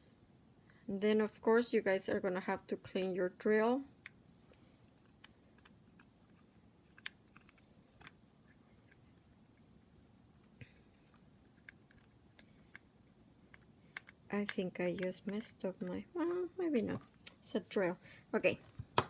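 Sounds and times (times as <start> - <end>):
small objects clicking and tapping: 13.5 - 17.1.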